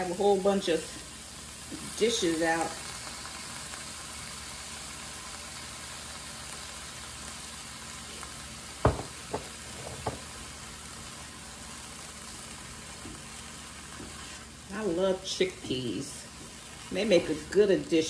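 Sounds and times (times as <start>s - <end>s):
rice sizzling in a skillet: 0.0s - 18.0s
spatula stirring rice: 11.8s - 18.0s.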